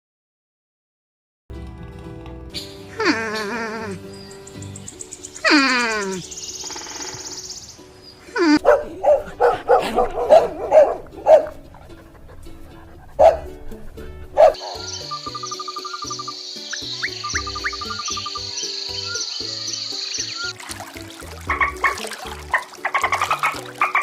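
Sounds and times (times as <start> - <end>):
background music: 1.5 - 24.0
dog barking: 8.6 - 11.6, 13.1 - 13.6, 14.4 - 15.0.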